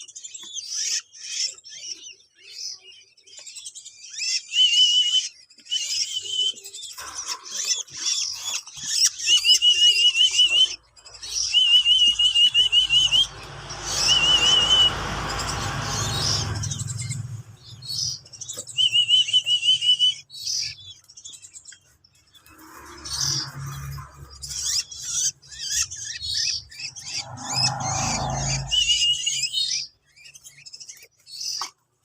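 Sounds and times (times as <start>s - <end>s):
songbird chicks chirping: 0.0s - 32.0s
high wavering trill: 25.8s - 29.6s
low rumble: 26.2s - 29.3s.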